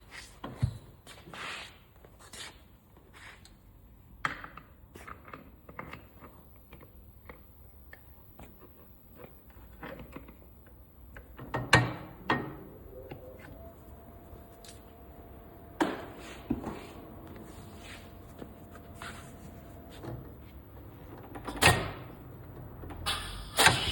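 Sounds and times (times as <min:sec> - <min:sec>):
faint steady tone: 0:12.3 - 0:19.9.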